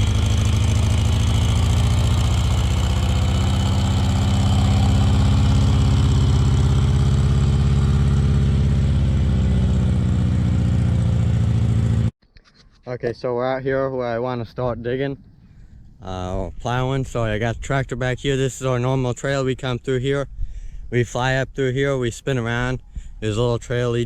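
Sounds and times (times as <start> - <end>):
tractor engine running: 0.0 - 12.1.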